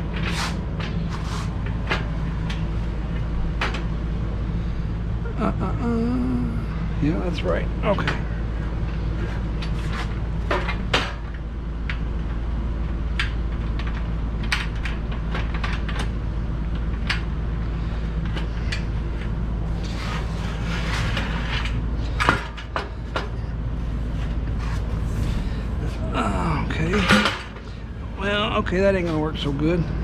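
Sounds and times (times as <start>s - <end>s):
steady low hum: 0.0s - 30.0s
short scrape: 0.3s - 1.6s.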